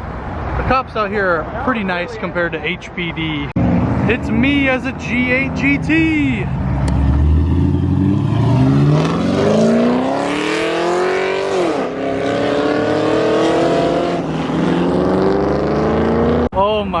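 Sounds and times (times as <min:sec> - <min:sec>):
car engine accelerating: 0:03.6 - 0:16.5.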